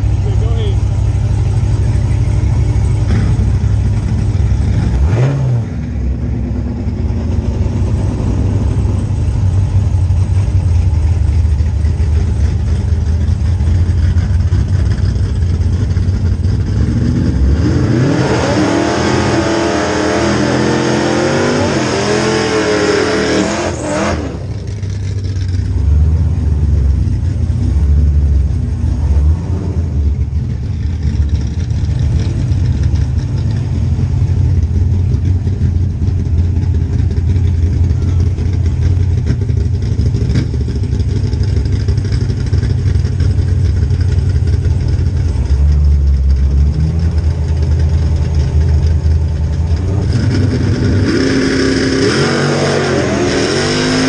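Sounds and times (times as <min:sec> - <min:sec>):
car engine idling: 0:00.0 - 0:18.1, 0:20.0 - 0:52.6
loud engine revving hard: 0:04.7 - 0:05.8, 0:16.8 - 0:24.5, 0:50.0 - 0:54.0.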